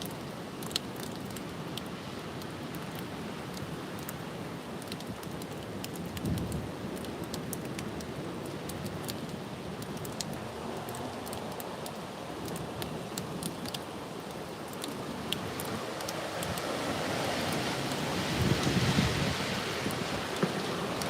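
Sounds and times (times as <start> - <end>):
raindrop ticks: 0.0 - 21.0
wind and rain rushing: 0.0 - 21.0
wind gust buffeting microphone: 16.4 - 21.0.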